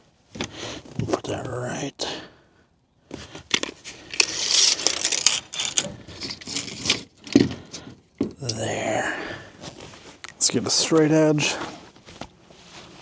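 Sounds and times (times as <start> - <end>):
building materials crinkling and rustling: 3.1 - 8.8, 9.4 - 13.0.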